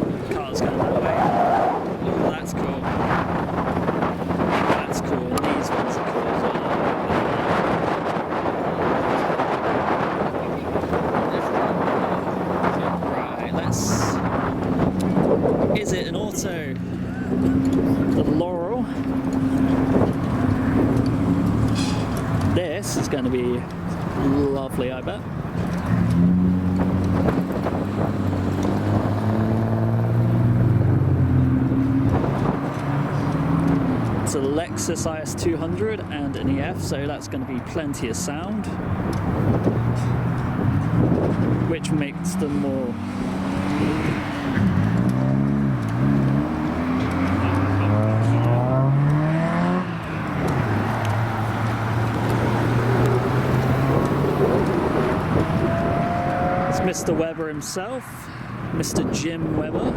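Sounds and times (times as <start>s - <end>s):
car engine pulling away: 0.0s - 37.1s, 38.2s - 57.8s
wind buffeting microphone: 0.0s - 59.9s
second engine rising: 40.5s - 57.3s.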